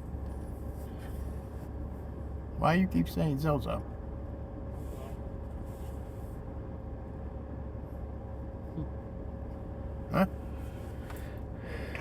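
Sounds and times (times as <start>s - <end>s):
low hum inside a car: 0.0s - 12.0s.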